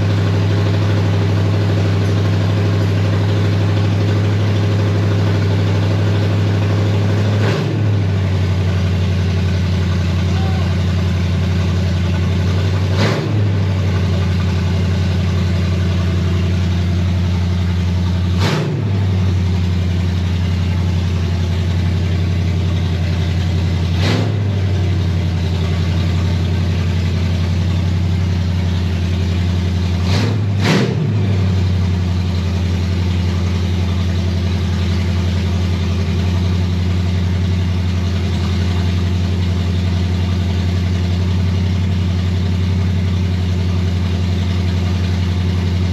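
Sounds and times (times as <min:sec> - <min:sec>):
car engine running: 0:00.0 - 0:45.9
engine revving blips: 0:18.3 - 0:19.3, 0:23.9 - 0:24.8, 0:30.0 - 0:31.6.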